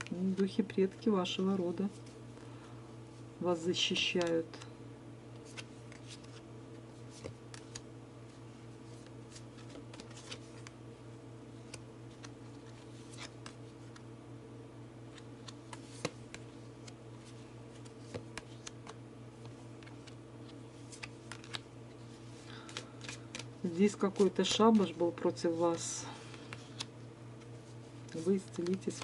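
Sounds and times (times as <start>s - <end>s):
steady low hum: 0.0s - 29.0s
cards being shuffled: 3.8s - 4.7s, 5.4s - 6.4s, 7.0s - 10.8s, 11.6s - 14.1s, 15.1s - 29.0s.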